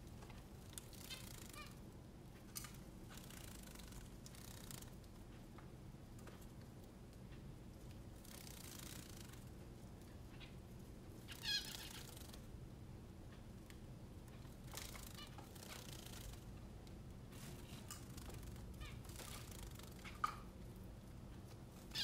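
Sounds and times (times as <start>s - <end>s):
bird chirping: 1.0s - 1.8s, 11.2s - 12.4s.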